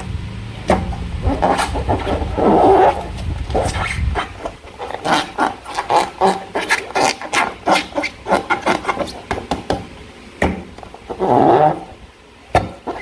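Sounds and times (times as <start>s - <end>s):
slime squelching: 1.2s - 9.3s.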